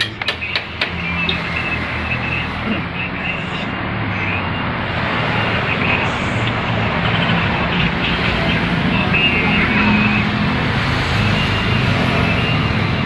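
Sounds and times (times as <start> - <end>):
vehicle rumble: 0.0 - 13.0.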